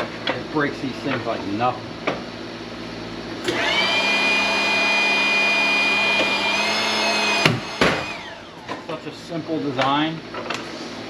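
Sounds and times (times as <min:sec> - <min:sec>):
hydraulic pump whining: 0:03.4 - 0:09.2.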